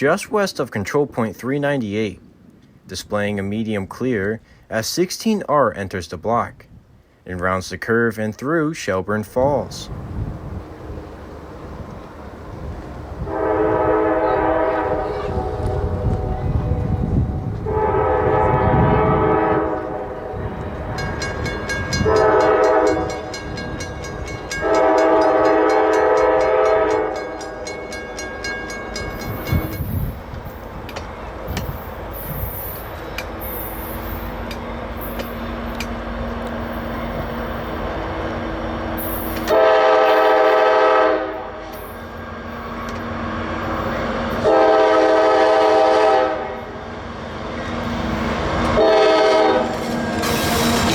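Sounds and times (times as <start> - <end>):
train rumbling by: 9.2 - 50.9
locomotive air horn blasts: 13.2 - 27.8, 39.0 - 41.8, 43.9 - 46.8, 48.7 - 50.9
wheels squealing: 47.9 - 50.9.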